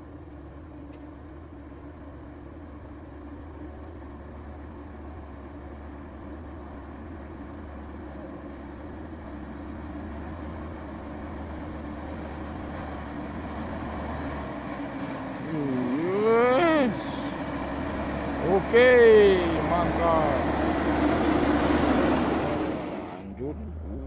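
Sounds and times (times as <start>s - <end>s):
diesel truck engine under load: 0.0s - 24.0s
pitched call dipping and rising: 15.5s - 22.7s.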